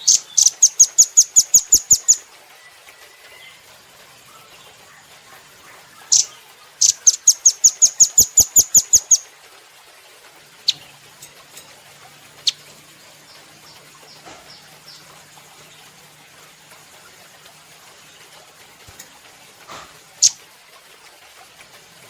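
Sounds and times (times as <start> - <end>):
bird calling sharp chips: 6.1 - 9.2, 20.2 - 20.4.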